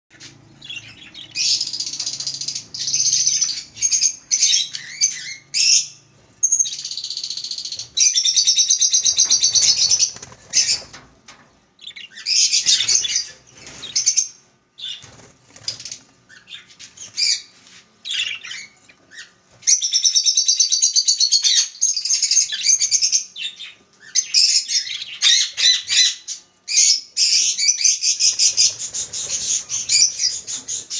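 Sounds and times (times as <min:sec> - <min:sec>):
budgerigars chattering and warbling: 0:26.8 - 0:30.9.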